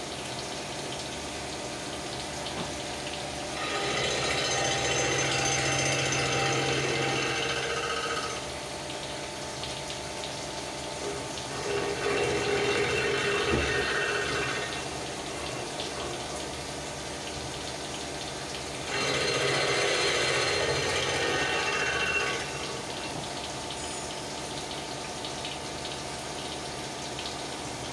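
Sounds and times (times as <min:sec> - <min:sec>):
coolant splashing: 0:00.0 - 0:27.9
milling machine cutting metal: 0:03.5 - 0:08.7, 0:11.0 - 0:16.8, 0:18.6 - 0:24.2.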